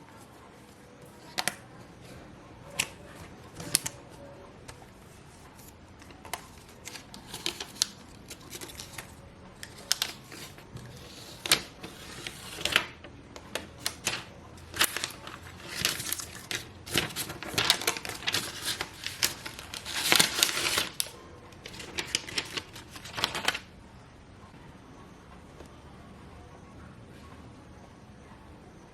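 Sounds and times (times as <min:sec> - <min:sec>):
packaging crinkling: 0:05.4 - 0:23.7.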